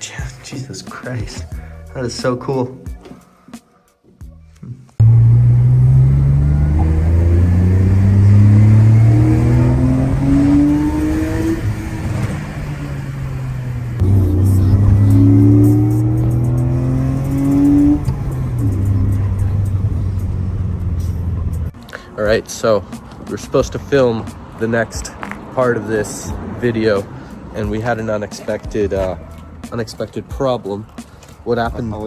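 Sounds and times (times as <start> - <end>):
car engine accelerating hard: 5.0 - 21.8.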